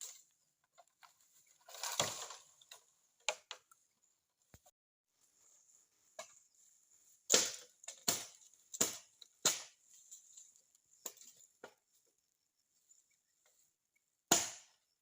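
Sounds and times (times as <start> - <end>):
chopping strikes: 7.3 - 9.8, 14.3 - 14.8.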